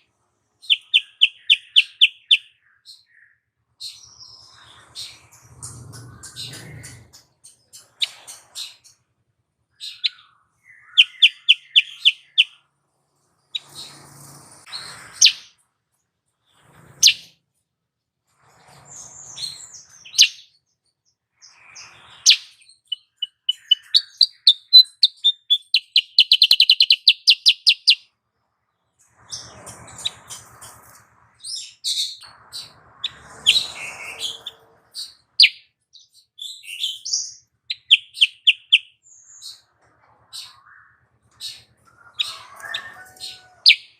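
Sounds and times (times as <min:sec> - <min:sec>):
bird chirping and trilling: 0:00.6 - 0:09.0, 0:09.7 - 0:12.7, 0:13.4 - 0:15.6, 0:16.4 - 0:17.4, 0:18.7 - 0:20.6, 0:21.4 - 0:28.1, 0:29.2 - 0:39.7, 0:40.3 - 0:43.9.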